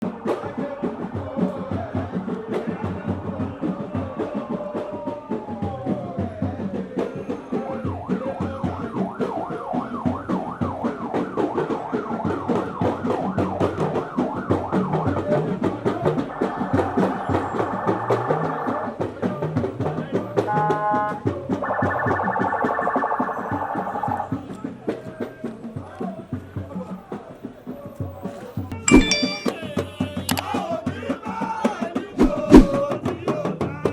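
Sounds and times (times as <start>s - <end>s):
sirens wailing: 7.2s - 24.5s
steady drumming: 28.7s - 33.9s.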